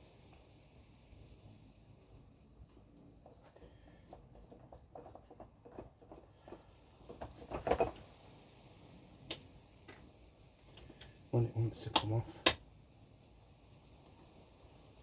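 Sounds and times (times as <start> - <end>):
small clicks and scraping: 2.6 - 8.5, 9.2 - 11.2.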